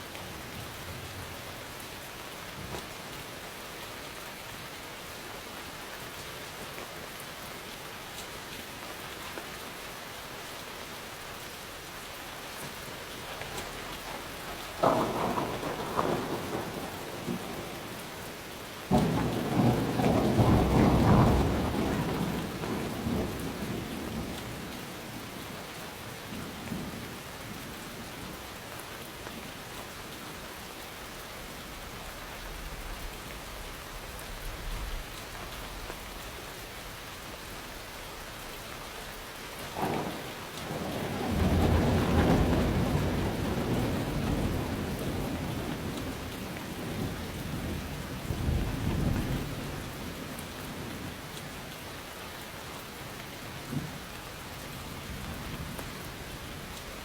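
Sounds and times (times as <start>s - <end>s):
steady rain falling: 0.0s - 57.0s
thunder crack and rumble: 12.6s - 25.3s, 39.6s - 51.3s, 53.6s - 54.1s.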